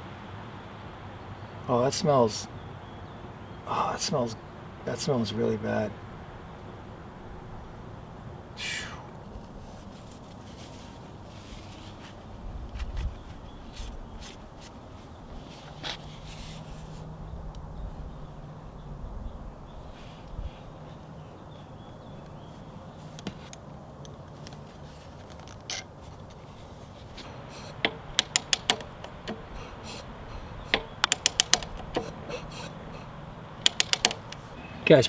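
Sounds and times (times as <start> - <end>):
light handling noises: 9.2 - 17.7, 19.9 - 35.0
hand ratchet clicking: 27.2 - 34.5.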